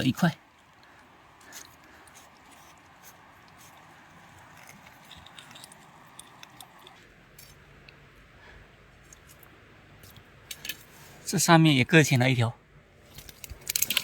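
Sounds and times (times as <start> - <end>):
clicks and light crackling: 10.1 - 10.8, 13.1 - 14.0.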